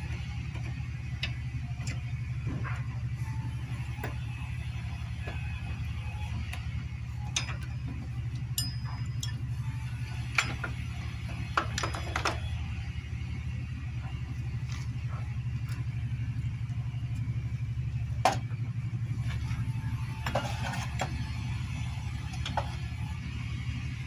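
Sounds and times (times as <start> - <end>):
steady low hum: 0.0 - 24.0
metal tools clinking: 7.2 - 12.5.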